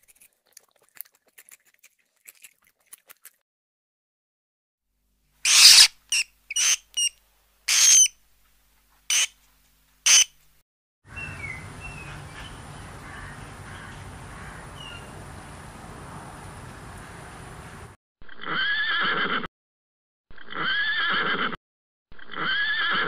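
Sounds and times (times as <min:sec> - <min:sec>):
short sharp animal squeaks: 0:05.5 - 0:07.1, 0:07.7 - 0:08.1, 0:10.1 - 0:10.3.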